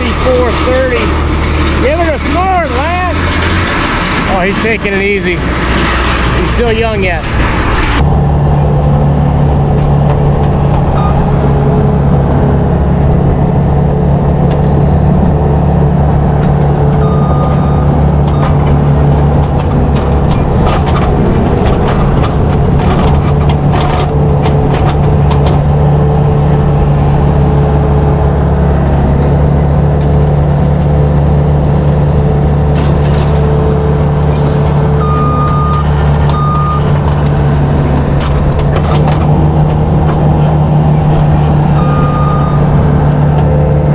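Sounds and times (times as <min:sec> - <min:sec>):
tractor diesel engine running: 0:00.0 - 0:43.9
short electronic beep: 0:11.0 - 0:11.3, 0:35.0 - 0:36.9, 0:41.8 - 0:42.6.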